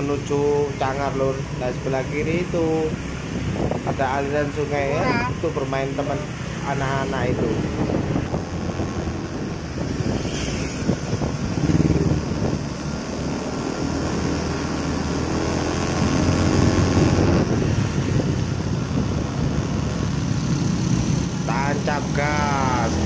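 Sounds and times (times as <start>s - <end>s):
scooter engine running: 8.2s - 23.0s.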